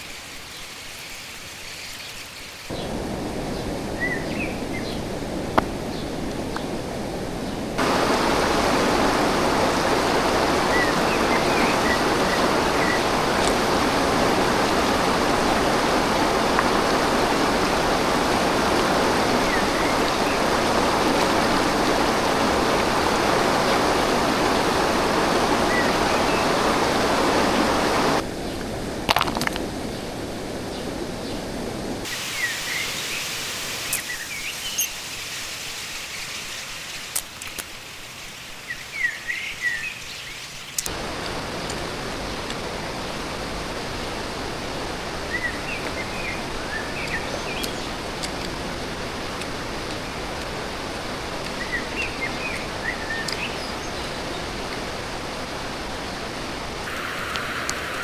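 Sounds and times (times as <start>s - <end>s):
birds chirping: 0.0s - 6.8s, 7.4s - 28.6s, 32.1s - 42.5s, 56.8s - 58.0s
stream rushing: 2.7s - 58.0s.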